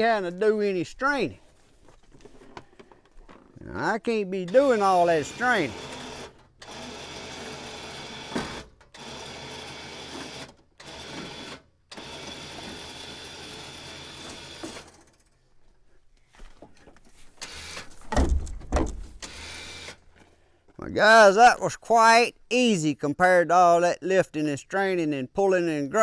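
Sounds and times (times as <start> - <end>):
electric winch whining: 4.5 - 15.2, 17.4 - 18.0, 19.2 - 20.0.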